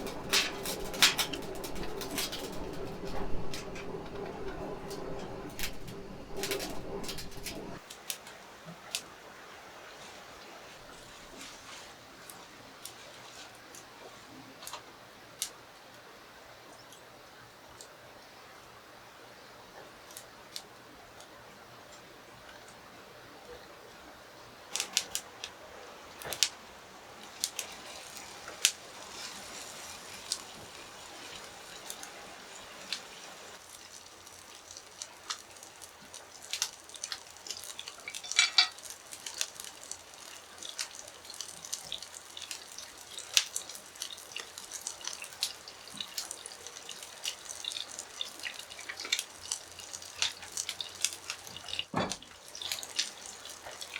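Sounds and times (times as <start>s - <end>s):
clinks and knocks of objects: 38.1s - 38.9s.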